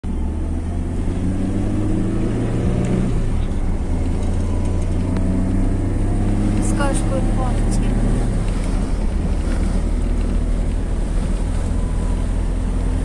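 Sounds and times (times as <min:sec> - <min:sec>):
wind buffeting microphone: 0:07.7 - 0:13.0.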